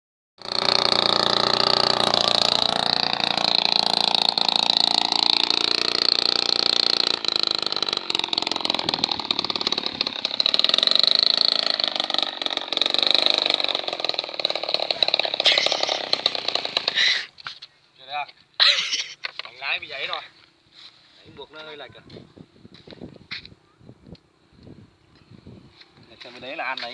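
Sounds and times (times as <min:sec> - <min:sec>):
small engine running: 0:00.4 - 0:17.5, 0:24.1 - 0:26.9.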